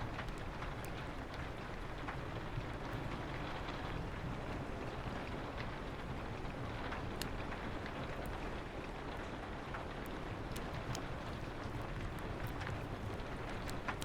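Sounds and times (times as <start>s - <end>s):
fireplace crackling and popping: 0.0s - 14.0s
steady rain: 0.0s - 14.0s.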